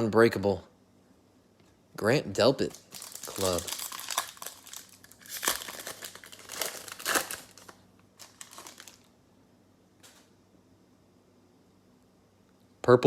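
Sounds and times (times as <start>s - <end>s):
card packs crinkling and rustling: 2.6s - 9.1s.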